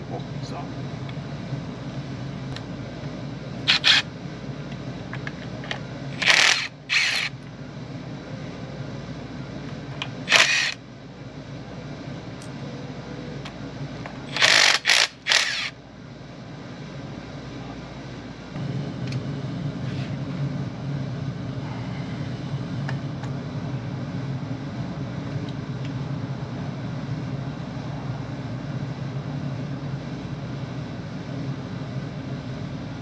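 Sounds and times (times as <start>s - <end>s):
steady low hum: 0.0s - 33.0s
sharp mechanical tool bursts: 3.7s - 4.0s, 6.2s - 7.3s, 10.3s - 10.8s, 14.3s - 15.7s.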